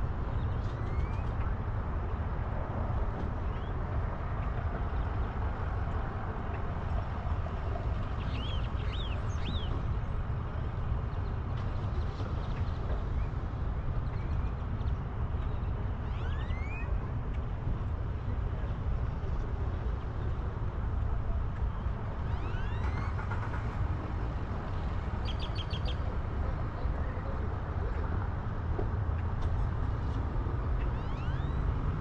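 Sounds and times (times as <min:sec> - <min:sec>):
wind and road noise: 0:00.0 - 0:32.0.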